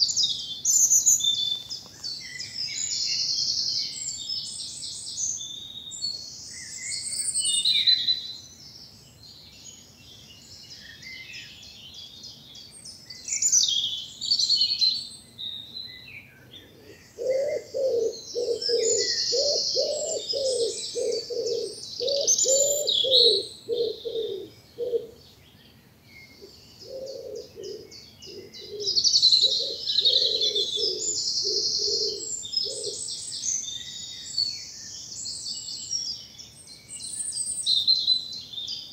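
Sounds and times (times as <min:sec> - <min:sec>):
songbirds singing and trilling: 0:00.0 - 0:38.9
bird cooing: 0:16.4 - 0:25.2, 0:26.4 - 0:33.1.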